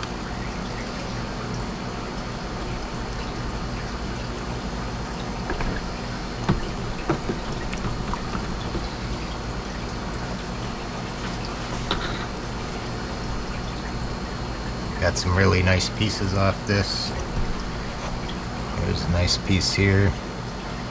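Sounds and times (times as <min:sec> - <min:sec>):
water running and splashing: 0:00.0 - 0:15.2, 0:16.8 - 0:19.1
light knocks and taps: 0:05.5 - 0:09.0.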